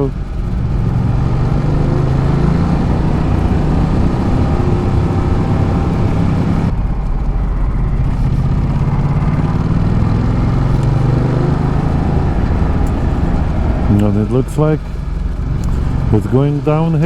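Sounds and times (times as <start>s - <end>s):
motorcycle engine running: 0.0s - 17.0s
rushing noise: 0.0s - 17.0s.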